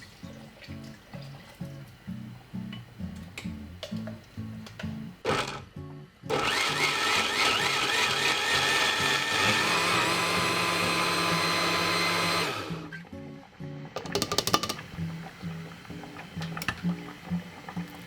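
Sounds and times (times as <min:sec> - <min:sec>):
soft background music: 0:00.0 - 0:18.0
kitchen appliance motor running: 0:05.2 - 0:05.6, 0:06.3 - 0:12.9.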